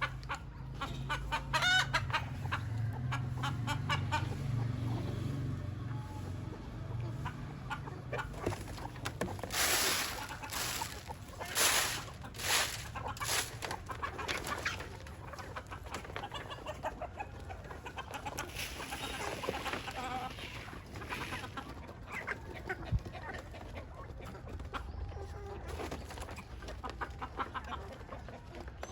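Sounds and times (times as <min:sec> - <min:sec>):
chickens clucking: 0:00.0 - 0:28.9
rustling noise bursts: 0:08.6 - 0:15.0.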